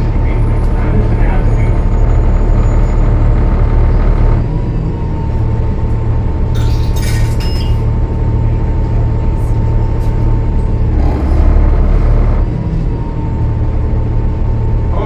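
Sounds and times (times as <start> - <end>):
bus diesel engine running: 0.0 - 15.0
thin whine: 0.6 - 4.5, 11.0 - 12.5.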